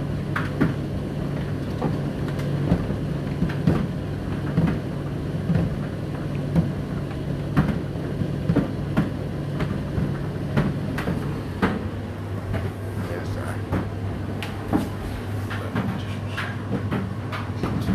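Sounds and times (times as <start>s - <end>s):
tumble dryer motor hum: 0.0s - 17.9s.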